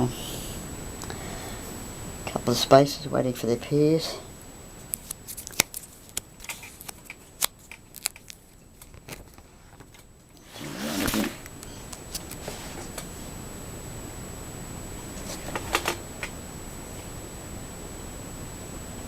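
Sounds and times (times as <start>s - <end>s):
album page turning rustle: 4.9s - 11.5s, 15.2s - 16.3s
cards clicking and crinkling: 5.0s - 10.1s.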